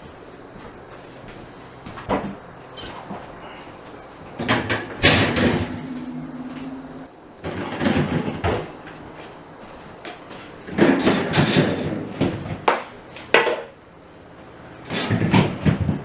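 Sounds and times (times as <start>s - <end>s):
low steady hum: 0.0s - 11.2s
plastic fridge shelves rattling: 4.4s - 5.9s, 7.4s - 8.8s, 10.7s - 12.6s, 14.9s - 16.0s.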